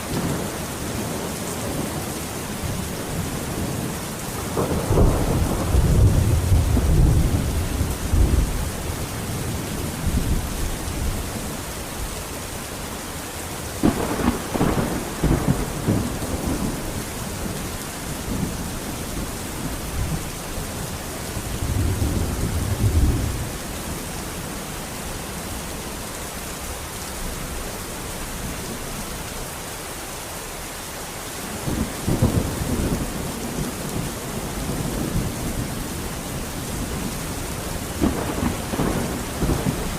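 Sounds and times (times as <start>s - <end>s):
thunder rumbling: 0.0s - 12.1s, 13.6s - 24.5s, 31.5s - 39.9s
steady rain: 0.0s - 39.9s.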